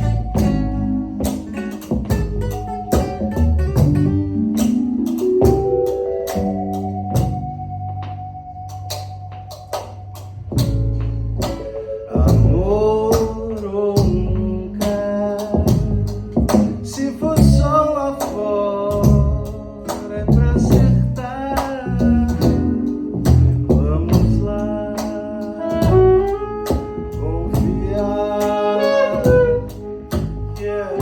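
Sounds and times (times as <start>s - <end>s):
live band with vocals: 0.0s - 5.6s, 11.4s - 31.0s.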